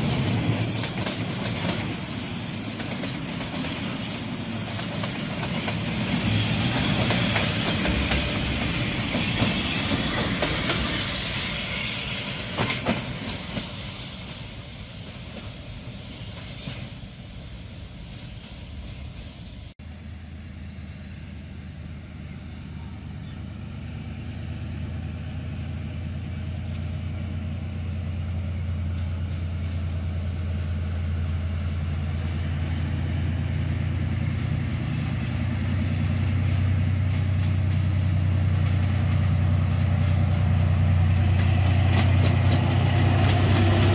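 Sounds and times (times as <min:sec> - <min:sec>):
diesel locomotive engine humming: 0:00.0 - 0:43.9
train running on rails: 0:00.0 - 0:43.9
wheel squeal: 0:00.6 - 0:05.5, 0:09.2 - 0:19.7.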